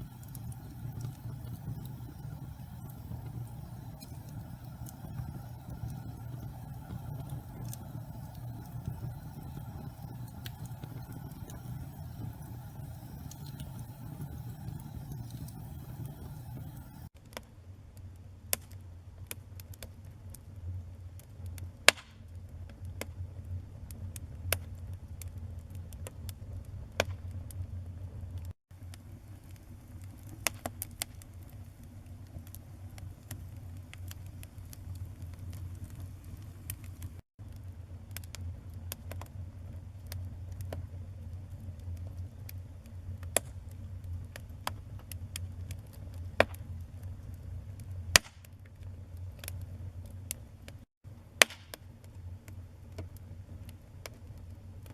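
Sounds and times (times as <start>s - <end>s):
fire flames rumbling: 0.0s - 17.1s, 22.8s - 50.6s
wood crackling and popping: 0.0s - 17.1s.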